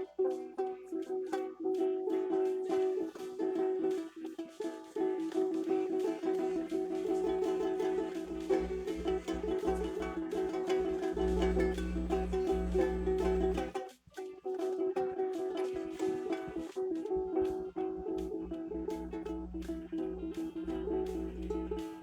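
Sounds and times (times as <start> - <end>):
plucked acoustic string instrument: 0.0 - 22.0
low hum: 5.9 - 13.8, 15.7 - 22.0.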